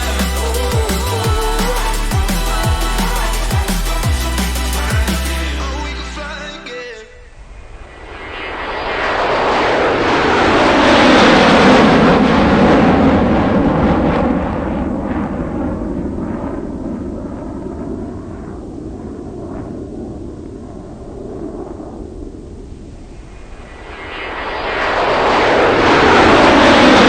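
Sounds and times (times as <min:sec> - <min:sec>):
airplane flying past: 0:23.7 - 0:27.0.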